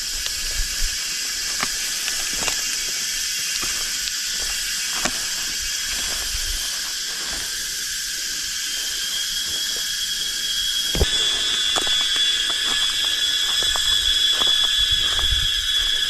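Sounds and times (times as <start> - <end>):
forest insects chorus: 0.0 - 16.0
shrill tone: 9.4 - 16.0.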